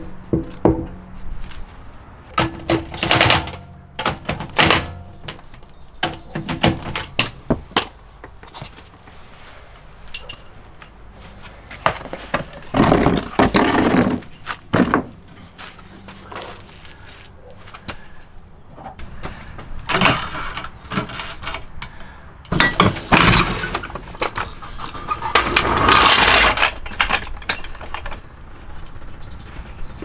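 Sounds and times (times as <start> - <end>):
rustling scraping: 0.0 - 2.7, 7.6 - 30.0
tools and parts clicking: 19.9 - 28.3
loud clatter: 22.5 - 28.3.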